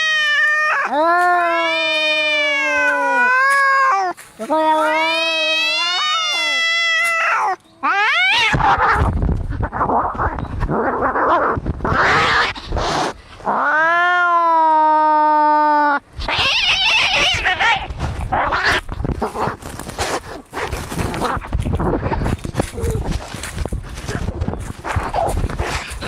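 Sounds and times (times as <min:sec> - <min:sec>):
cat yowling: 0:00.0 - 0:10.3, 0:13.5 - 0:18.8
cats hissing and growling: 0:00.0 - 0:26.0.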